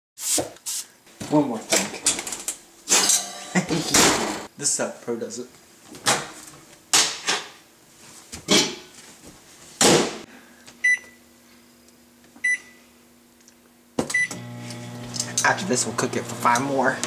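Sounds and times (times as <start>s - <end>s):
microwave running hum: 10.3s - 17.0s.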